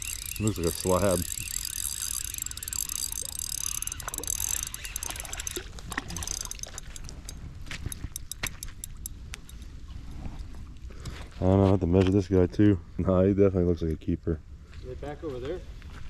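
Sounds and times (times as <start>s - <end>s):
fishing reel gears whirring: 0.0s - 9.7s
sharp clicks and taps: 0.0s - 9.7s.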